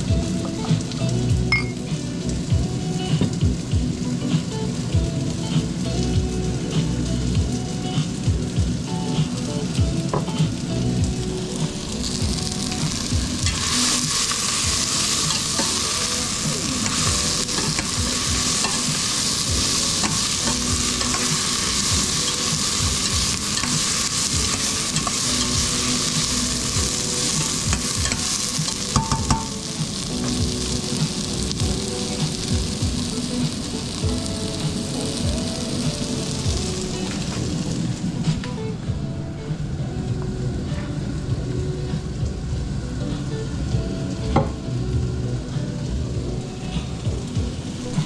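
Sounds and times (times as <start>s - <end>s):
food sizzling in a frying pan: 0.0s - 38.6s, 39.5s - 48.0s
utensil knocking against pan: 29.0s - 29.6s.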